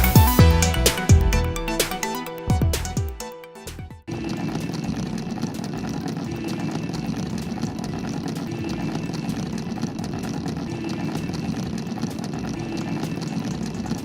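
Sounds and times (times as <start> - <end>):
rattling gear clicks: 4.1 - 14.0.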